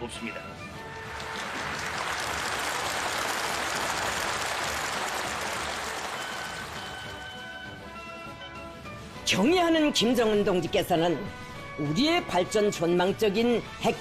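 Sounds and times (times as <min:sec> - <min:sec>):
background music: 0:00.0 - 0:14.0
crowd applauding: 0:00.8 - 0:07.8.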